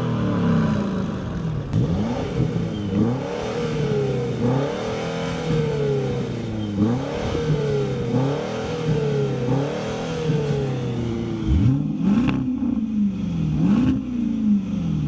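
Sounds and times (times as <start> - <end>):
engine revving: 0.0 - 15.0
exhaust cracks: 11.4 - 13.0.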